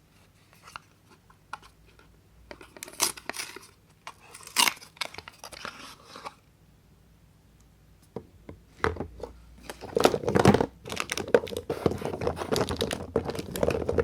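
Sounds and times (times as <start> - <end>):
soap wrapper crackling and tearing: 2.8 - 5.8, 10.8 - 14.0.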